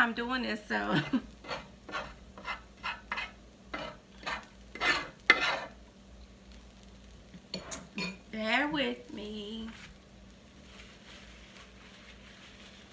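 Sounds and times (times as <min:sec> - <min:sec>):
metal utensil scraping a pan: 0:01.0 - 0:05.8.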